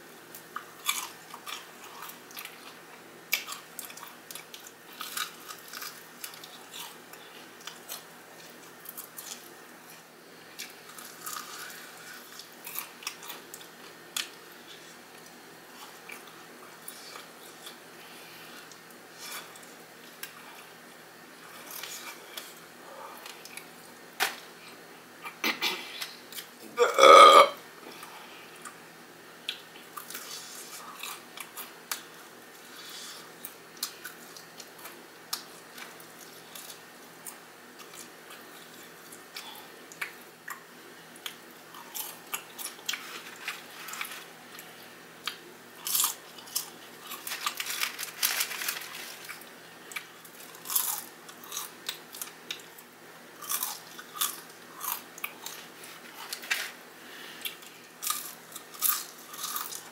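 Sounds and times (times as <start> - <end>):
crunching fried chicken: 0.6 - 9.9, 10.6 - 17.8, 41.2 - 56.8, 57.4 - 59.9.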